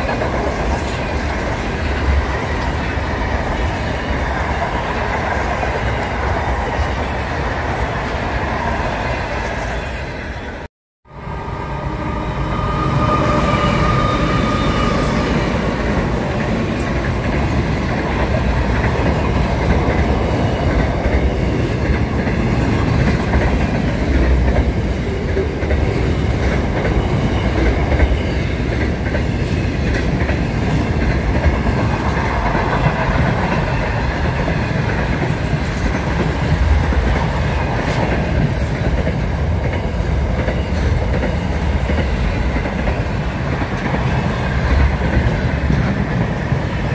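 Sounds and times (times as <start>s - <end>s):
wheels clickety-clack on rails: 0.0s - 8.3s, 15.0s - 46.9s
diesel locomotive passing: 0.0s - 46.9s.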